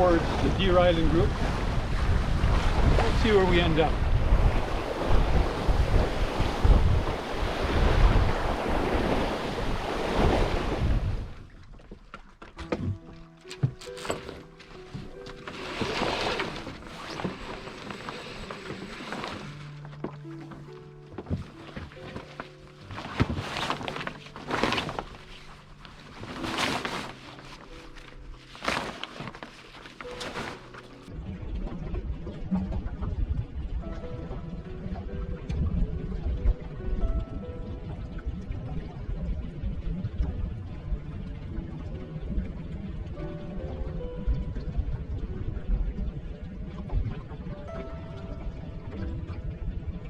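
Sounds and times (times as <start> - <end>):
wind buffeting microphone: 0.0 - 11.5
water rushing past hull: 0.0 - 50.0.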